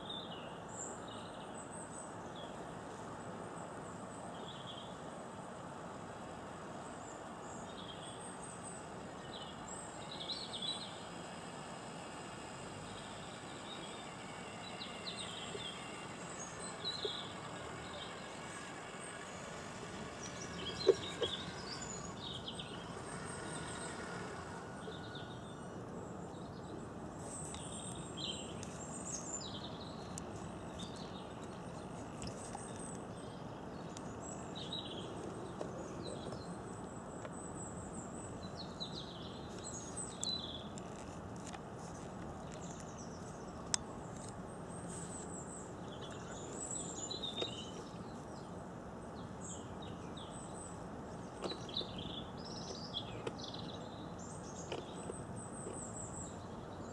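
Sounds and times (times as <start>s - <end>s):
outdoor background hiss: 0.0s - 56.9s
birds chirping and singing: 12.4s - 36.6s.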